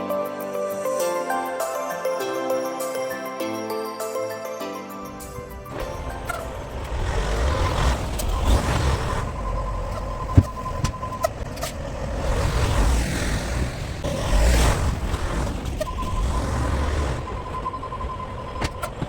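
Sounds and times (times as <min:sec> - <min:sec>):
high steady tone: 0:02.2 - 0:11.6
engine and road rumble: 0:05.0 - 0:19.0.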